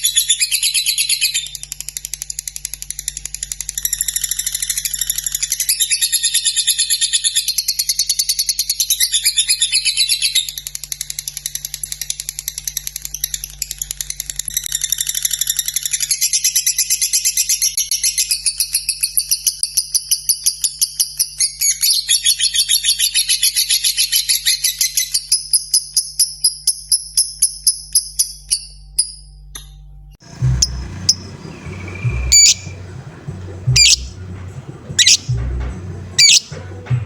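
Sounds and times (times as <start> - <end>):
lovebird chattering song: 30.2 - 36.8.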